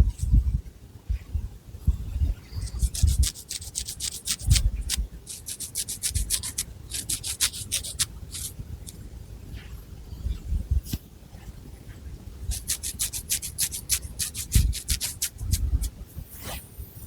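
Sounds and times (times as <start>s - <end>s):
fingernails scratching hair: 2.6s - 9.0s, 12.5s - 16.6s.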